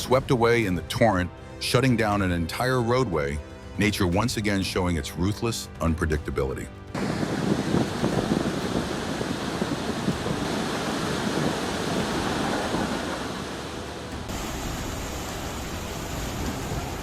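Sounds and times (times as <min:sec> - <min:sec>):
floodwater rushing: 0:06.8 - 0:17.0.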